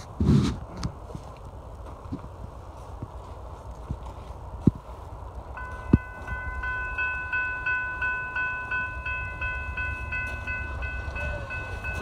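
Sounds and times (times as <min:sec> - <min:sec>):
railroad crossing bell ringing: 0:05.5 - 0:12.0.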